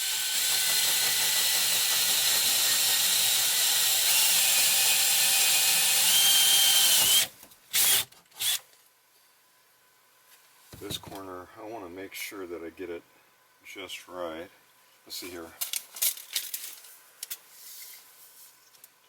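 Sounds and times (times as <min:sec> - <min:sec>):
power drill running: 0:00.0 - 0:08.6.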